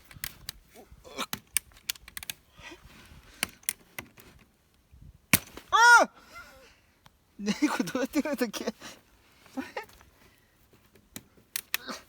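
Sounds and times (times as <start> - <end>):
dry wood cracking: 0.0 - 6.0, 9.6 - 12.0.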